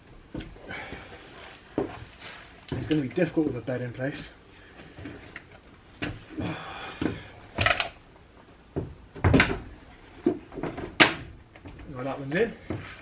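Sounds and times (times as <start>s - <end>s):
metal clunks and knocks: 8.7s - 11.9s.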